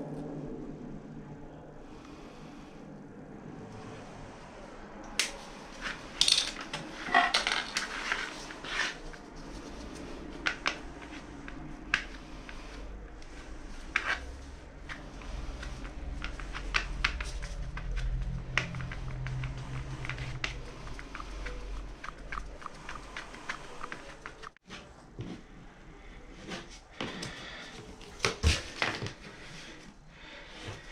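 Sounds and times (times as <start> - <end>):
hard objects clicking and clinking: 6.2 - 8.2.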